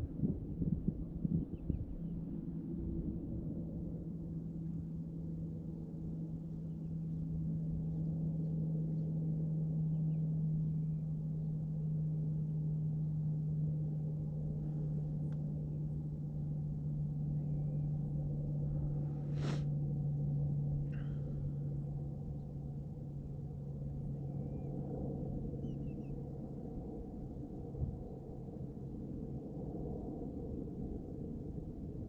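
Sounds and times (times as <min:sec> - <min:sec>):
low engine drone: 0:00.0 - 0:32.0
faint bird chirps: 0:25.6 - 0:26.2.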